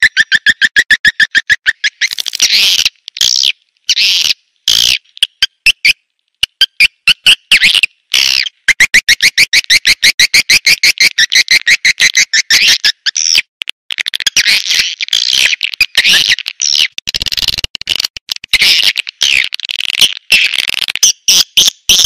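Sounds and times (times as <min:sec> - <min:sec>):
buzzy twittering calls: 0:00.0 - 0:13.5, 0:14.2 - 0:17.6.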